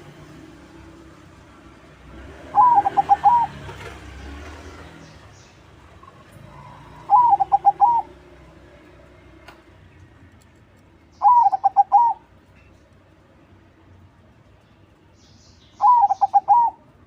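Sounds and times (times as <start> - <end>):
dove cooing: 2.4 - 3.6, 6.4 - 8.2, 11.2 - 12.2, 15.8 - 16.8.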